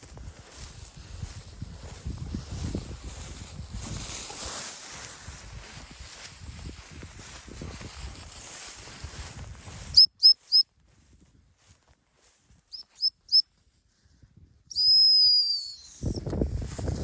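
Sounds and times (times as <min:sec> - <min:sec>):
dog-training whistle blasts: 0:10.0 - 0:10.6, 0:14.7 - 0:16.2.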